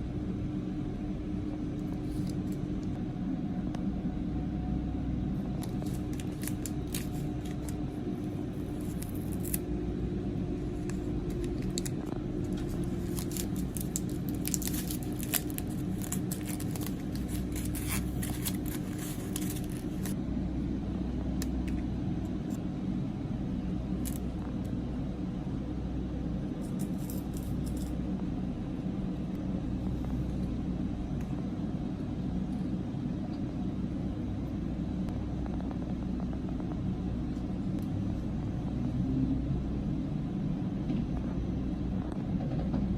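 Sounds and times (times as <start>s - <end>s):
steady low hum: 0.0s - 42.9s
snack packaging crinkling: 5.5s - 9.7s, 10.7s - 20.2s, 24.0s - 24.2s.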